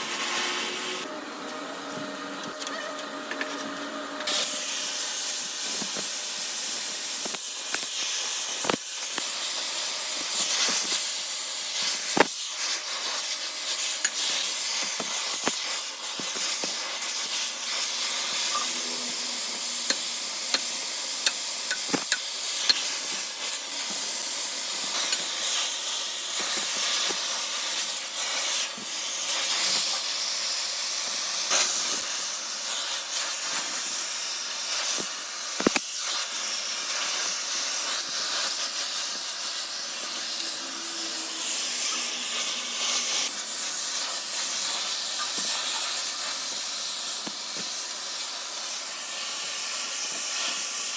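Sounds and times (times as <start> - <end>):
steady hiss: 4.3 - 50.9
machinery humming: 18.3 - 20.8, 39.8 - 43.6.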